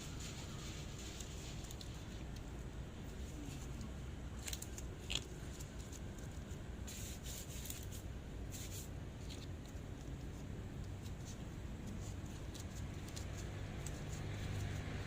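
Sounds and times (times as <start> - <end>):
hands rubbing bread dough: 0.0 - 2.3
low steady hum: 0.0 - 15.0.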